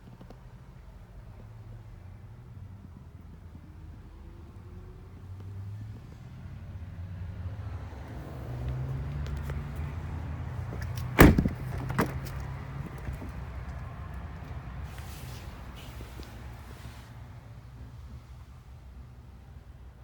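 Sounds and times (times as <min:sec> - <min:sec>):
truck door shutting: 0:10.7 - 0:13.5.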